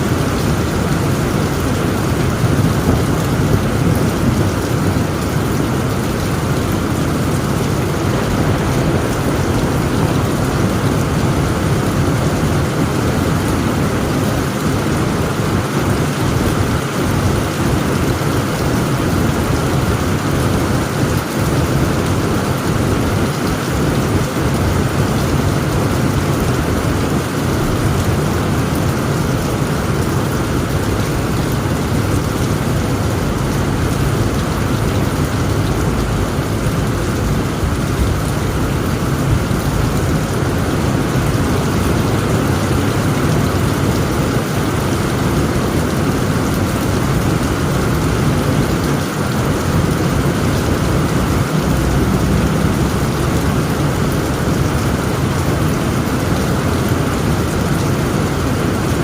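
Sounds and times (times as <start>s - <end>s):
heavy rain on a tent roof: 0.0s - 59.0s.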